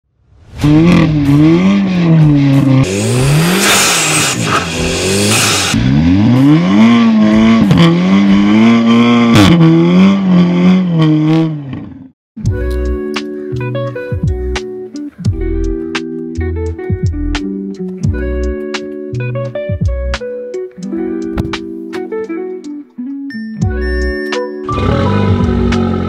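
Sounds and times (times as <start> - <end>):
car engine revving hard: 0.5 - 12.0, 24.7 - 26.0.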